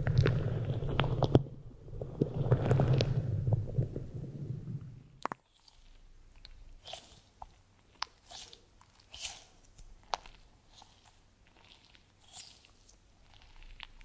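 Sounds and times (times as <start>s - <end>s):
soft clicks and crackles: 0.0s - 4.2s
low rumbling noise: 0.0s - 5.2s.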